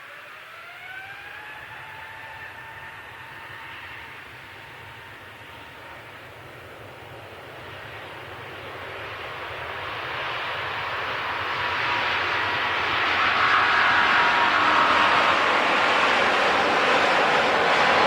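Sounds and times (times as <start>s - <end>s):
faint engine whine: 0.0s - 18.0s
jet engines roaring: 0.0s - 18.0s.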